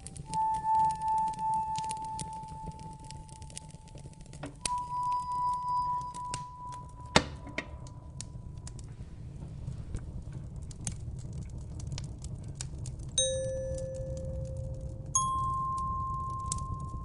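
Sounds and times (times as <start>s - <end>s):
wood fire crackling: 0.0s - 17.0s
low steady rumble: 5.2s - 17.0s
bell-like chime note: 13.2s - 17.0s.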